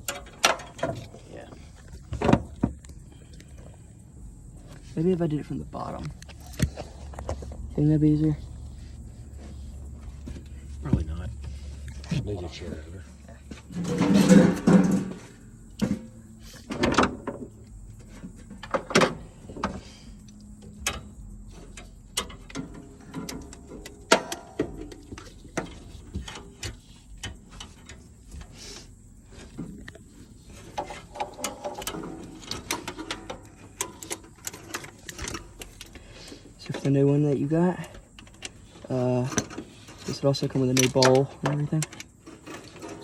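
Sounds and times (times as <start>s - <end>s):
hand tools clicking and knocking: 0.0s - 1.2s, 20.8s - 28.5s, 30.6s - 43.0s.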